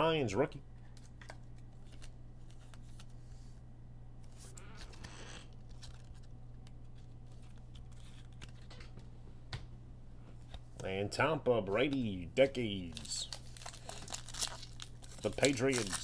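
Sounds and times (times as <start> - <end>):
low electrical hum: 0.0 - 16.0
foil wrapper crinkling: 12.4 - 16.0.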